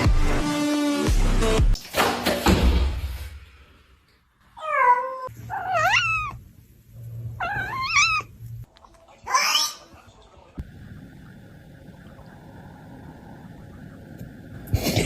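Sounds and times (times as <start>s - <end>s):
cat meowing: 4.6s - 6.4s, 7.4s - 8.3s.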